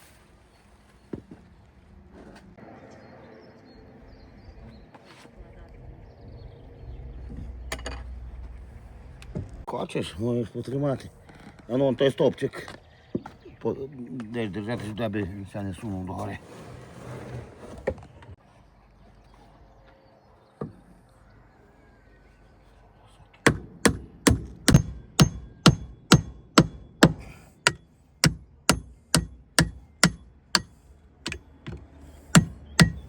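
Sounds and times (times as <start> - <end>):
hammer blows on wood: 23.5 - 33.0.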